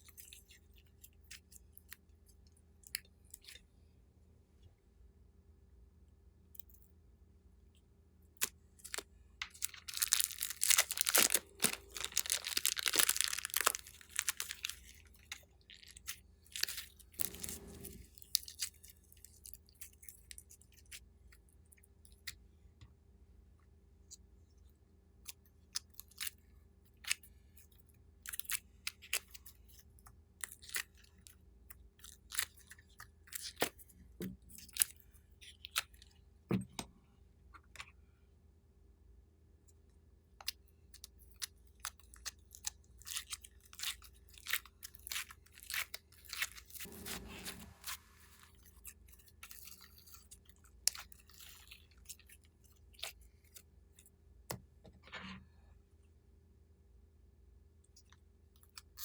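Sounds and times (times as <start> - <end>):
slime crackling and popping: 8.8 - 17.5.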